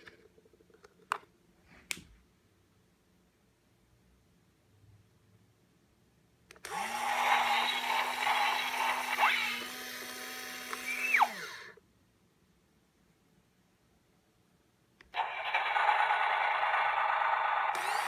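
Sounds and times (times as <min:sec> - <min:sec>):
toy motor whirring hum: 0:06.6 - 0:11.8, 0:15.2 - 0:18.0.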